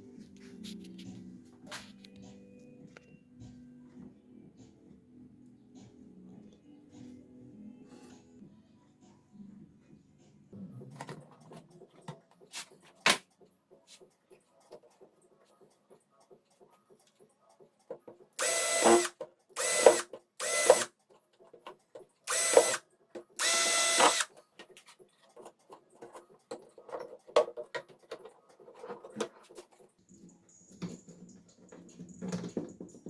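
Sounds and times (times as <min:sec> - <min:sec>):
power tool motor whining: 0:18.4 - 0:20.9, 0:22.3 - 0:22.8, 0:23.4 - 0:24.3.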